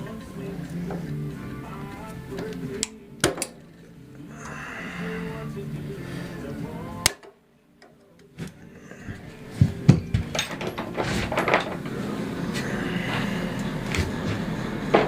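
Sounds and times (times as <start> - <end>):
hand tools clinking on metal: 7.0 - 13.7.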